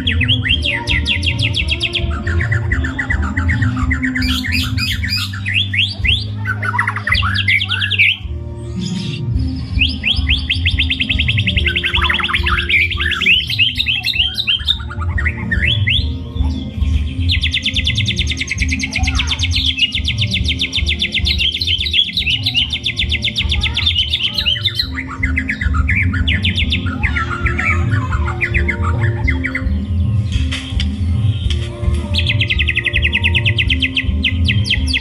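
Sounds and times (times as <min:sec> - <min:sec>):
bird fast trills: 0:00.0 - 0:30.4
bird swooping whistles: 0:02.4 - 0:29.8.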